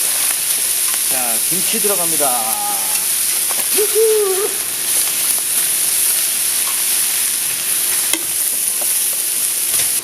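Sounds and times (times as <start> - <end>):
meat sizzling on a lid: 0.0 - 10.0
short voiced sound: 3.7 - 4.6.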